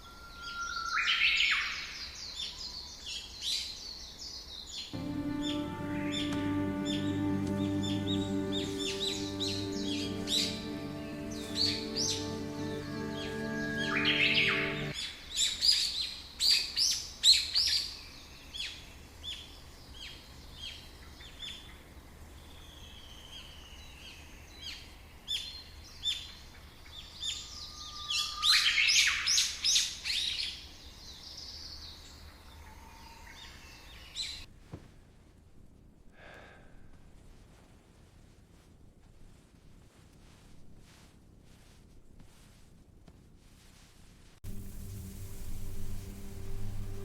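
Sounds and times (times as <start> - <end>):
forest birds singing: 0.0 - 34.4.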